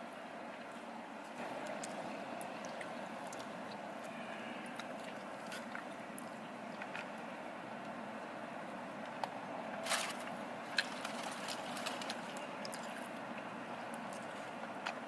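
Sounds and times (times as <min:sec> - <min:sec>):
steady background noise: 0:00.0 - 0:15.0
brief crinkle or rustle: 0:09.8 - 0:12.4.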